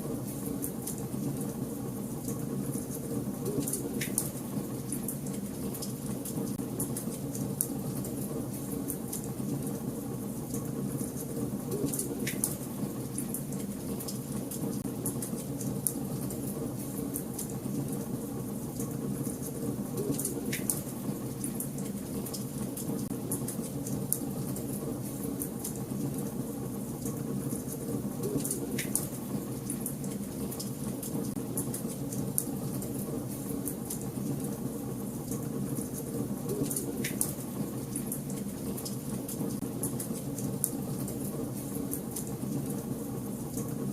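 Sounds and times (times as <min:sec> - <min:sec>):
wood fire crackling and popping: 0:02.2 - 0:07.8, 0:10.5 - 0:16.3, 0:35.2 - 0:41.2.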